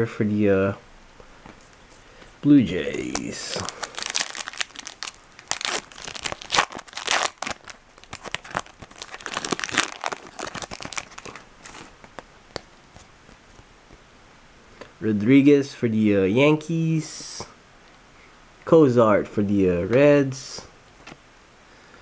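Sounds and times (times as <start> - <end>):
foil wrapper tearing and crackling: 2.9 - 12.2.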